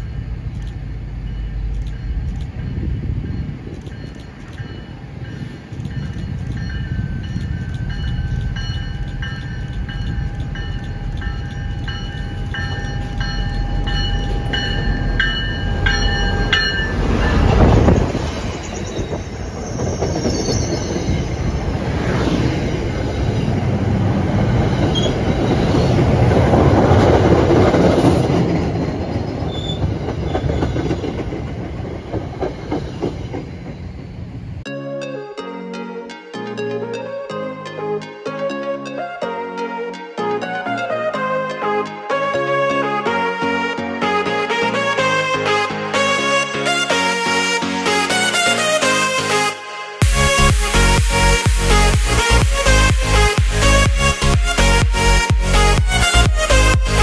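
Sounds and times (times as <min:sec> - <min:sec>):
high ringing tones: 0:00.0 - 0:26.0
diesel locomotive rumbling: 0:00.0 - 0:34.7, 0:50.0 - 0:57.0
train wheels clacking over rails: 0:24.4 - 0:34.4.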